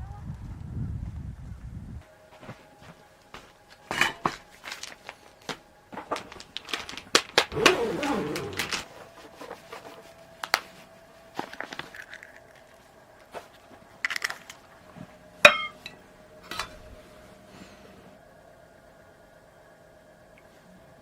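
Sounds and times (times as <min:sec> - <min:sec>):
faint steady hum: 0:00.0 - 0:21.0
dishes and utensils clinking: 0:03.9 - 0:04.5, 0:15.4 - 0:17.0.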